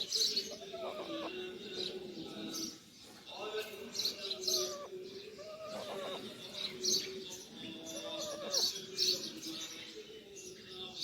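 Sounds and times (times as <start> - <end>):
parrot chicks calling: 0.0 - 2.8, 4.0 - 9.8.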